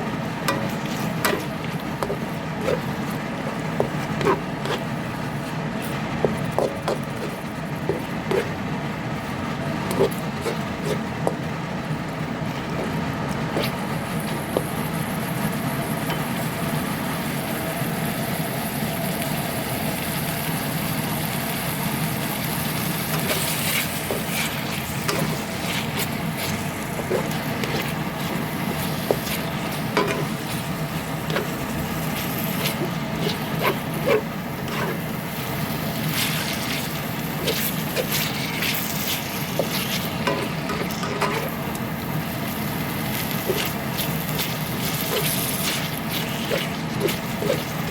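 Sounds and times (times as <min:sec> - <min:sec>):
steady whirring hum: 0:00.0 - 0:47.9
utensil stirring in a pan: 0:00.4 - 0:15.2, 0:22.5 - 0:47.9
food sizzling in a pan: 0:13.6 - 0:47.9.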